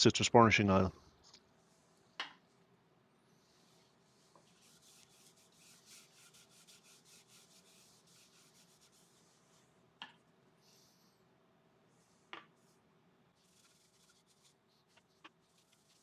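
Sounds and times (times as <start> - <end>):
cloth rubbing on wood: 3.5 - 9.7, 13.4 - 16.0.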